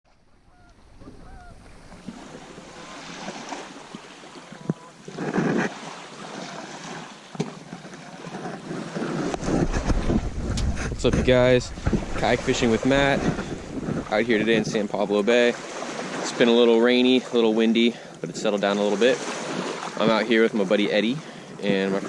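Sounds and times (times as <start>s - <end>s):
water lapping against kayak hull: 0.1s - 22.0s
wind buffeting microphone: 8.4s - 15.1s.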